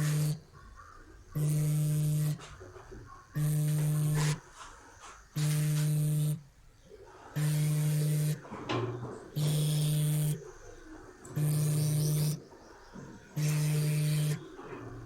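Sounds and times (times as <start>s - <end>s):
low buzzing alarm tone: 0.0s - 0.5s, 1.3s - 2.5s, 3.3s - 4.4s, 5.3s - 6.5s, 7.4s - 10.5s, 11.3s - 12.6s, 13.3s - 15.0s.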